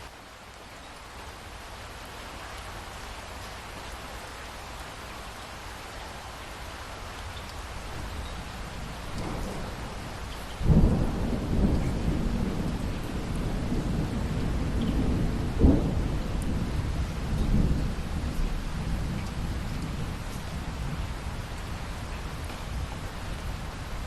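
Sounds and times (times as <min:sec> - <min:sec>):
steady rain: 0:00.0 - 0:24.0
thunder rumbling: 0:08.0 - 0:24.0
loud thunderclap: 0:09.2 - 0:16.7.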